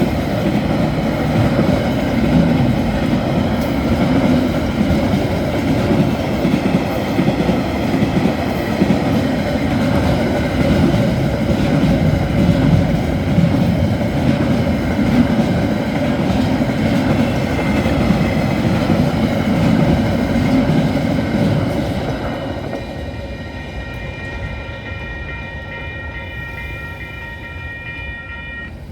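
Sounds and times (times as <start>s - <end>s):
train rumbling past: 0.0s - 28.9s
high ringing tone: 23.2s - 28.9s.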